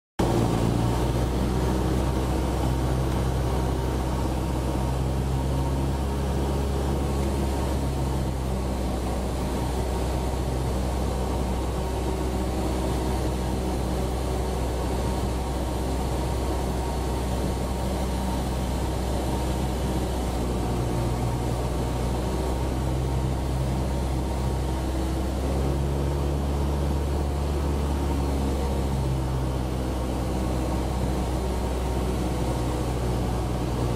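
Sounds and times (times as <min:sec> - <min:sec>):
airplane engine and propeller droning: 0:00.2 - 0:33.9.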